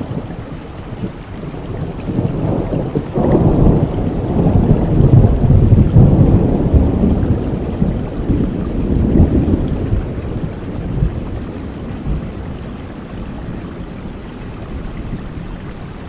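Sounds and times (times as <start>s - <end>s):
thunder rolling: 0.0s - 15.8s
steady rain: 0.0s - 16.0s.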